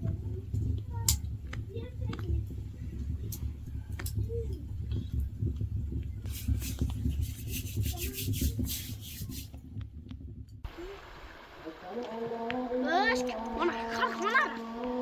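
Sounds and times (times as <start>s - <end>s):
rhythmic scraping strokes: 0.0s - 9.8s
steady low rumble: 0.0s - 15.0s.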